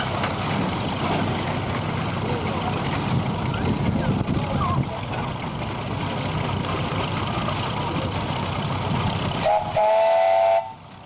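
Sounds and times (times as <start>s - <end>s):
machinery rumble: 0.0s - 11.0s
steam whistle blast: 9.4s - 10.8s.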